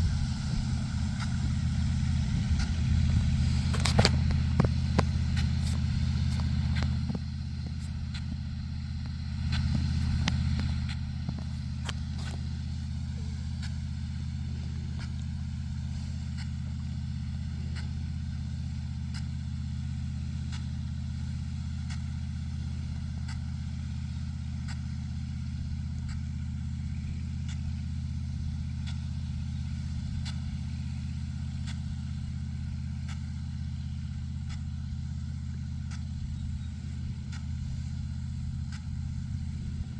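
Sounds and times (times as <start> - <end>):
large engine droning: 0.0 - 39.9.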